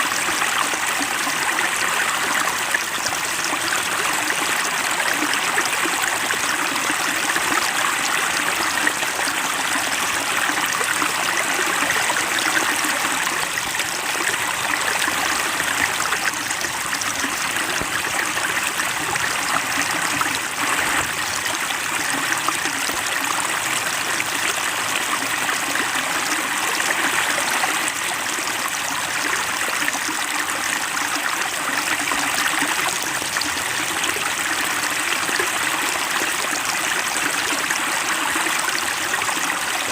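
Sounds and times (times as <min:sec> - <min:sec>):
water trickling into a pond: 0:00.0 - 0:39.9.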